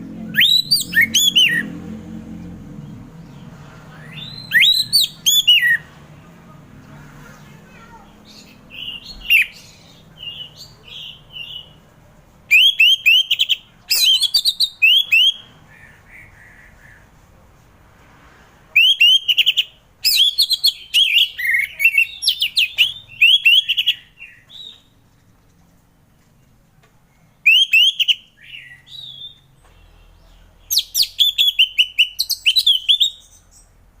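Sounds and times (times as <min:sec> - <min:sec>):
thrush singing whistled notes: 0:00.3 - 0:01.8, 0:03.2 - 0:05.9, 0:12.5 - 0:16.7, 0:18.8 - 0:24.9, 0:27.5 - 0:30.0, 0:30.7 - 0:33.7.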